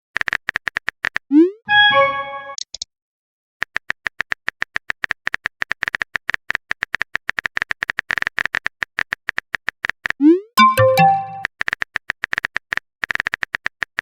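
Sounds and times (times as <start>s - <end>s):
keyboard typing clicks: 5.3s - 14.0s.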